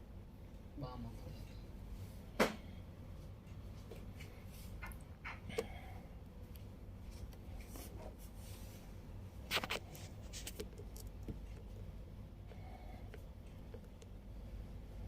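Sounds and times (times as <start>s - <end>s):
low steady hum: 0.0s - 15.0s
rustling handling noise: 7.0s - 11.8s.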